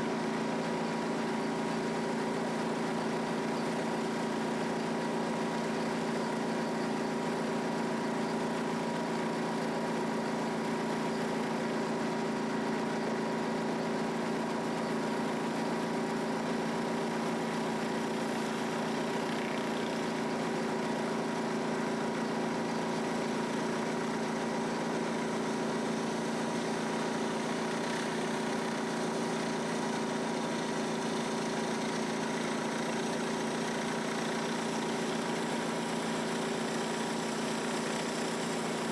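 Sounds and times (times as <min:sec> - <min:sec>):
pressure washer engine running: 0:13.4 - 0:38.9.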